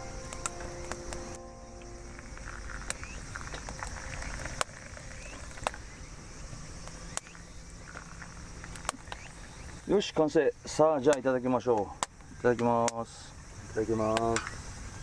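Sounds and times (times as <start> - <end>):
faint rising chirps: 0.0 - 9.8
bonfire crackling and popping: 0.0 - 14.6.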